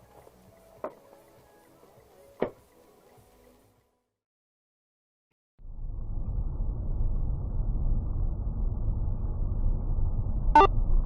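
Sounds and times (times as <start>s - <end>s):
car engine and road noise: 5.6s - 11.0s.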